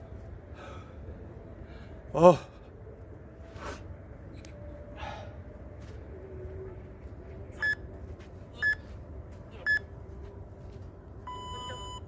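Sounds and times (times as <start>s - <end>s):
timer high beeps: 11.3s - 12.0s.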